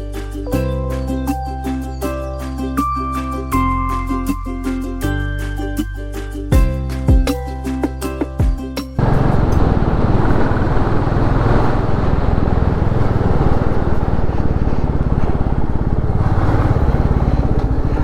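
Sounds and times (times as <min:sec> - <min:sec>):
music: 0:00.0 - 0:09.0
motorcycle engine running: 0:09.0 - 0:18.0
rushing noise: 0:09.0 - 0:18.0.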